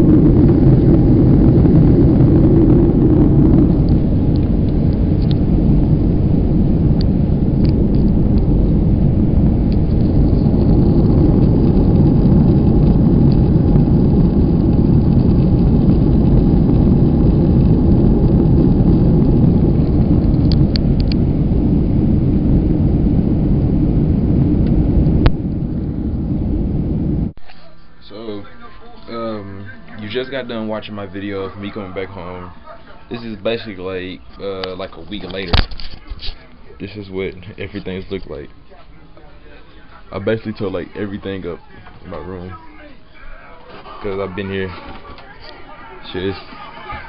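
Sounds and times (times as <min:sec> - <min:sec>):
airliner cabin rumble: 0:00.0 - 0:27.4.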